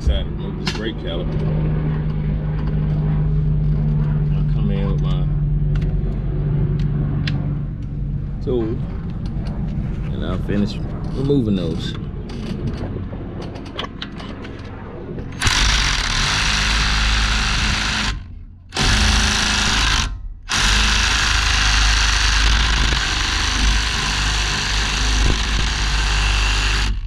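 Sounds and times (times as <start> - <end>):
pneumatic impact wrench hammering: 15.4 - 27.0.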